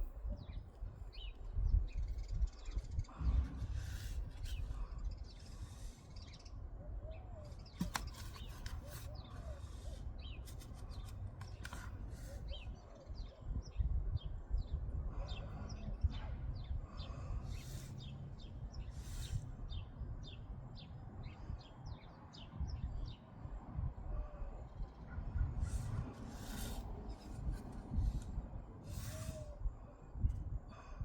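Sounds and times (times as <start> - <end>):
small birds chirping: 0.4 - 23.2.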